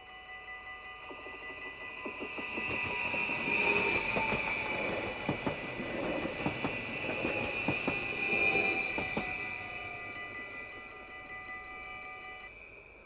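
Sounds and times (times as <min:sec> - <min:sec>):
crossing warning bell ringing: 0:00.0 - 0:13.0
train wheels rumbling and clicking: 0:00.9 - 0:11.4.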